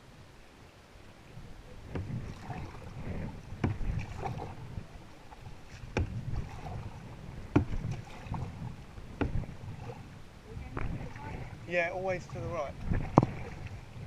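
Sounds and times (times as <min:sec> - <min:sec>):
water rushing: 0:00.0 - 0:14.0
paddles splashing: 0:01.5 - 0:14.0
knocks against canoe: 0:01.8 - 0:02.7, 0:03.6 - 0:04.6, 0:05.7 - 0:10.0, 0:12.8 - 0:13.8.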